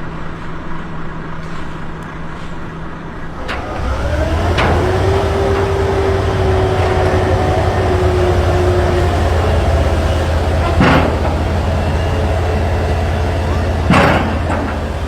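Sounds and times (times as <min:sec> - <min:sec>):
engine whine: 0:03.2 - 0:15.0
large engine running: 0:03.3 - 0:15.0.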